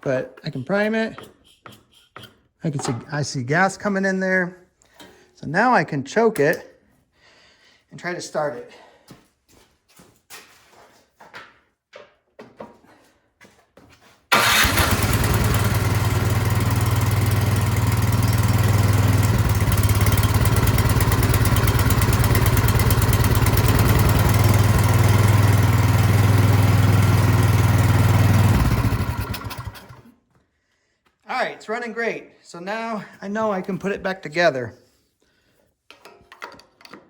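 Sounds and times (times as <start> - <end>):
snowblower engine running: 14.3 - 30.1.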